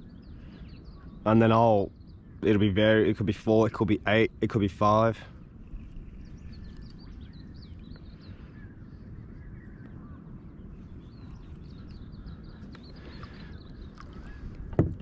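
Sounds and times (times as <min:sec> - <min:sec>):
birds chirping: 0:00.0 - 0:15.0
low rumble of wind: 0:00.0 - 0:15.0
water: 0:10.8 - 0:15.0.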